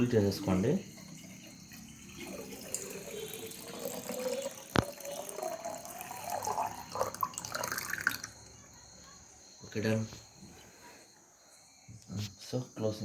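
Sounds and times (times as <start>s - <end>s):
water pouring into reservoir: 0.0s - 8.6s.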